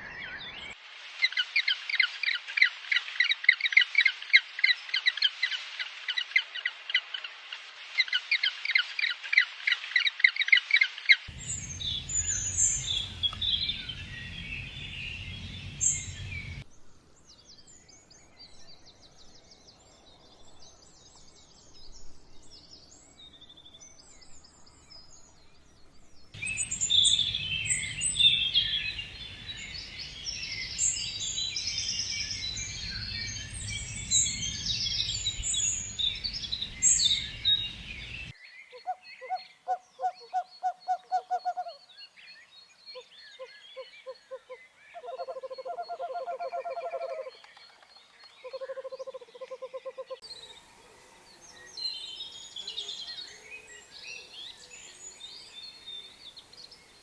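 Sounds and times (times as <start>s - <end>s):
birds chirping and trilling: 8.0s - 16.6s, 22.7s - 57.0s
low hooting notes: 11.3s - 16.6s.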